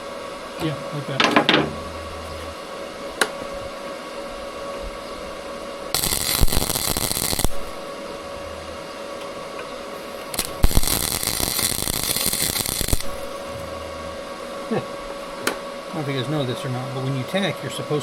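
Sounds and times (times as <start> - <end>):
welder electrical hum: 0.0 - 18.0
welding arc crackling: 5.9 - 8.0, 10.2 - 13.6.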